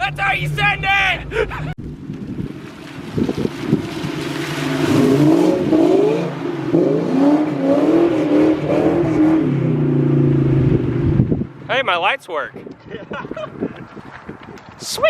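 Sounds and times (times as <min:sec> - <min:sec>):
car engine revving: 0:02.7 - 0:11.7.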